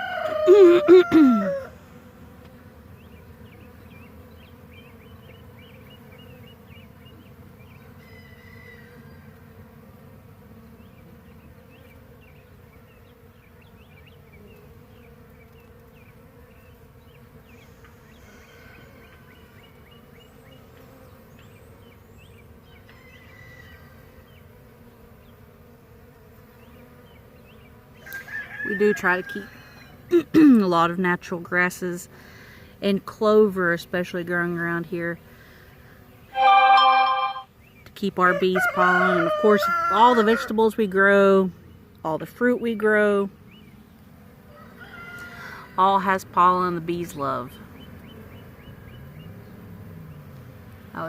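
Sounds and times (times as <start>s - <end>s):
bees buzzing: 0.0s - 51.0s
faint high chirps: 36.4s - 37.5s.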